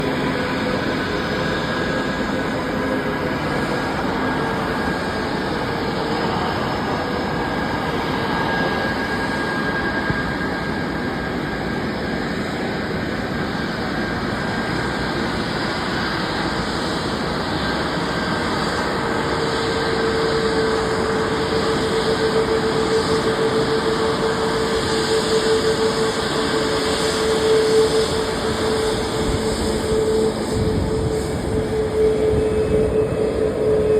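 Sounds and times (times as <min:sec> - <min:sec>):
jet engines running: 0:00.0 - 0:33.9
steady whine: 0:00.0 - 0:33.9.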